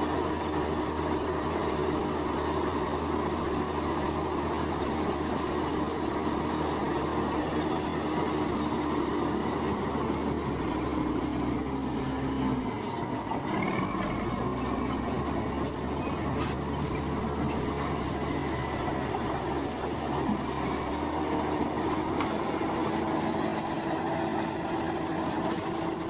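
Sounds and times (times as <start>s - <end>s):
bulldozer diesel engine running: 0.0s - 26.0s
steel tracks squealing and clanking: 0.0s - 26.0s.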